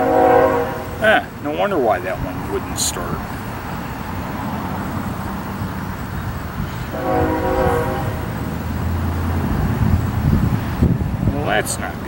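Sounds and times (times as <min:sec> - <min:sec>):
train horn: 0:00.0 - 0:01.1, 0:06.9 - 0:08.4
passing train rumbling: 0:00.0 - 0:12.0.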